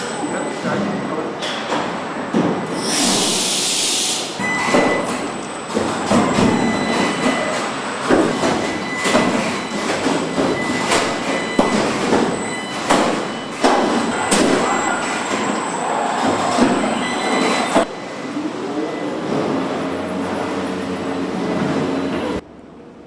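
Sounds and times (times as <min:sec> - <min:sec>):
steady machinery din: 0:04.4 - 0:18.3.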